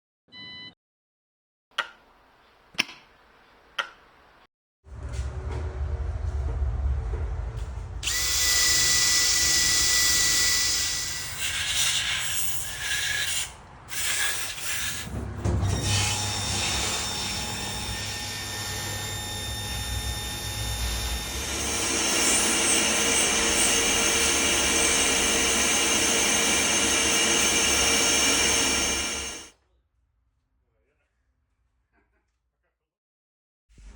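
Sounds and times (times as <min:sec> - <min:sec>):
power tools whining and grinding: 0:07.6 - 0:29.5.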